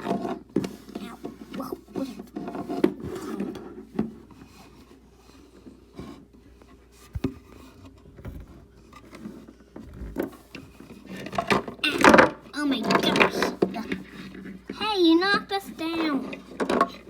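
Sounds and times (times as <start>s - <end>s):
objects knocking and scraping: 0.0s - 17.0s
heavy thump: 7.1s - 8.6s.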